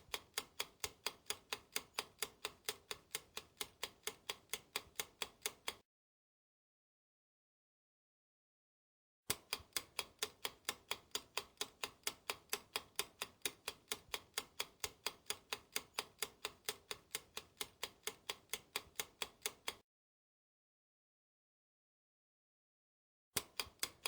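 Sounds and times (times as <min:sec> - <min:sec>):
ticking timer: 0:00.0 - 0:05.8, 0:09.3 - 0:19.8, 0:23.4 - 0:24.0.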